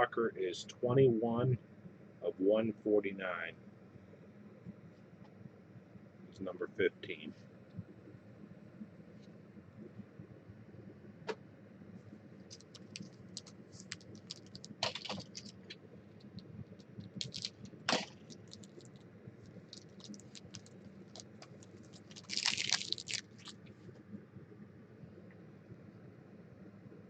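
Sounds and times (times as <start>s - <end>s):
trading card packaging crinkling: 12.5s - 23.7s.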